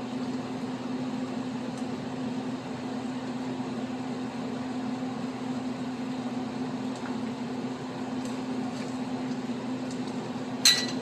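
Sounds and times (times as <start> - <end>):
low mechanical hum: 0.0 - 11.0
metal utensil clinking on pot: 10.6 - 11.0.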